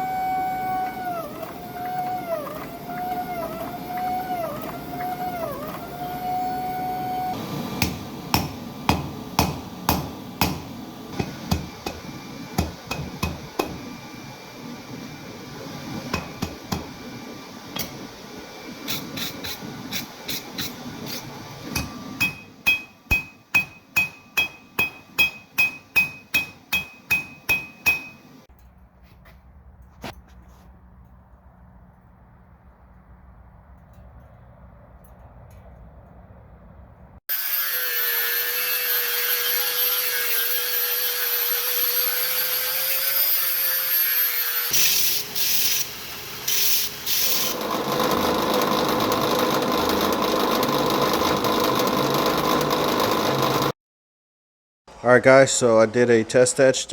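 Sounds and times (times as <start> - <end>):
hammer blows on anvil: 21.7 - 28.3.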